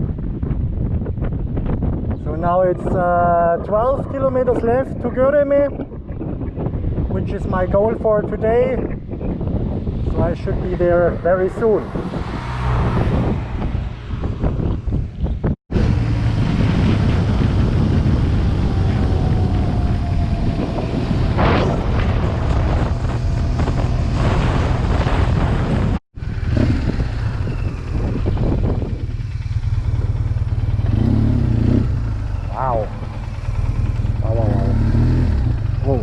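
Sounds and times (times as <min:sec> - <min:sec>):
wind rushing over microphone: 0:00.0 - 0:36.0
motorcycle engine running: 0:11.9 - 0:36.0.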